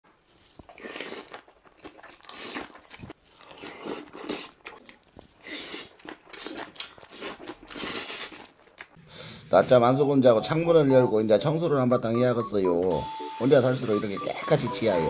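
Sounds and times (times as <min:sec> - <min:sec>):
chewing and biting food: 0:00.3 - 0:09.0.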